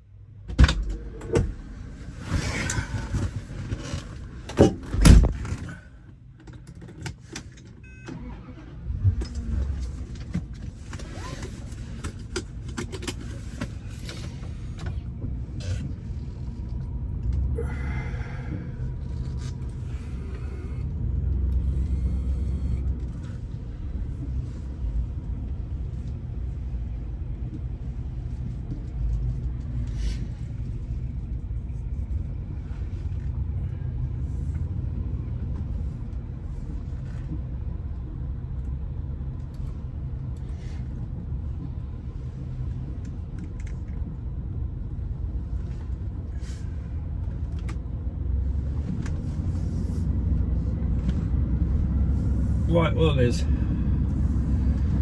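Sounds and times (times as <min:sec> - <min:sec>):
car engine rumbling: 0:00.0 - 0:55.0.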